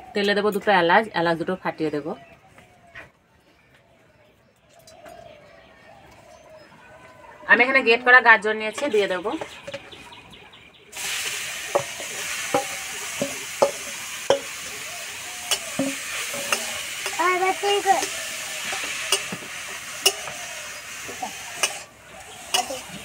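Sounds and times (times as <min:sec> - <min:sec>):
carrot sizzling in hot oil: 0:10.9 - 0:23.0
metal spatula scraping a pan: 0:11.0 - 0:20.6, 0:21.3 - 0:23.0.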